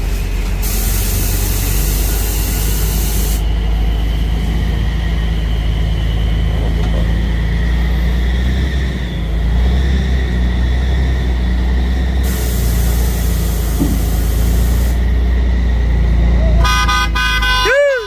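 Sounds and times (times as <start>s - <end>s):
loud hiss: 0.0s - 3.5s, 12.2s - 15.1s
truck engine running: 0.0s - 18.0s.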